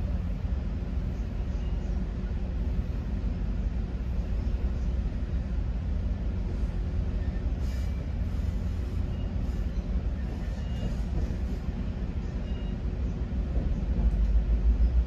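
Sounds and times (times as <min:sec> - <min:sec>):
train coach rumbling on rails: 0:00.0 - 0:15.0.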